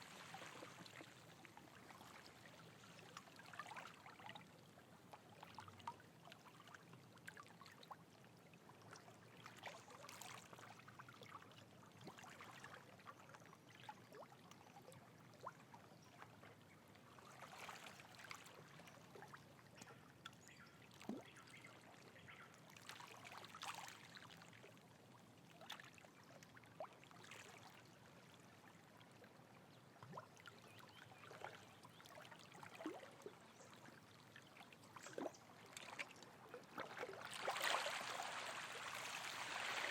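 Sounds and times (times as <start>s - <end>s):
faint trickling water: 0.0s - 39.9s
small splashes and gurgles: 17.2s - 24.7s, 29.9s - 39.9s.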